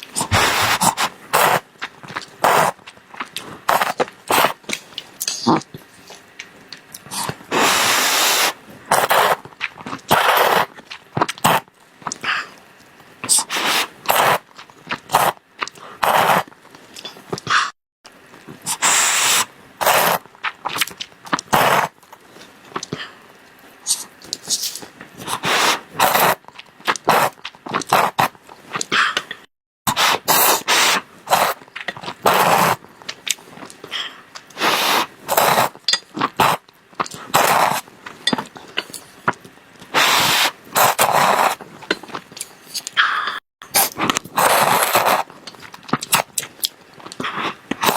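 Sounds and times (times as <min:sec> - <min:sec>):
chewing and mouth sounds: 0:08.9 - 0:12.6, 0:41.7 - 0:47.9.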